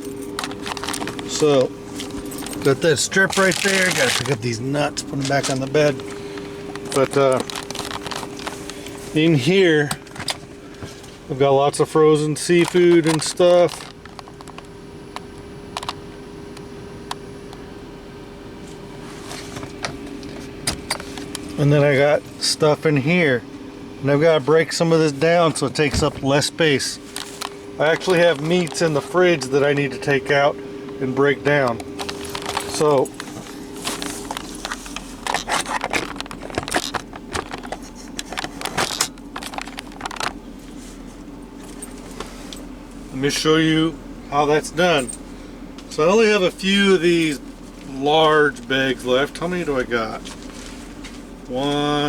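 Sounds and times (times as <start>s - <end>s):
food containers rattling and rustling: 0.0s - 11.2s, 12.4s - 14.7s, 25.6s - 30.1s, 31.4s - 42.5s
fridge-freezer hum: 0.0s - 52.0s
plastic packaging crinkling: 0.3s - 9.1s.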